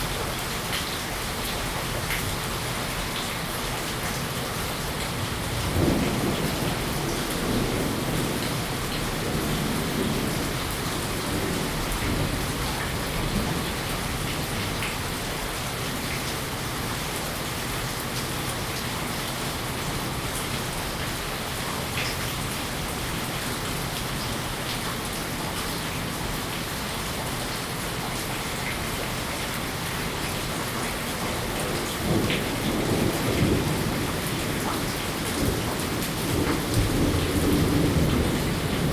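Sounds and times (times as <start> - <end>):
steady rain: 0.0 - 38.9
thunder rumbling: 5.2 - 14.8.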